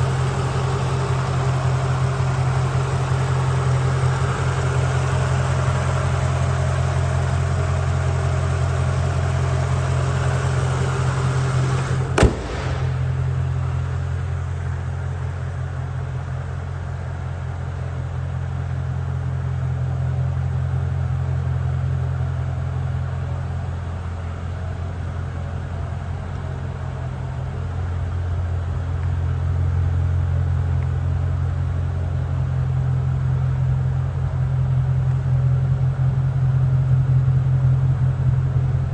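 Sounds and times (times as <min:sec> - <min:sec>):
car engine idling: 0:00.0 - 0:38.9
sharp knock: 0:12.1 - 0:13.5.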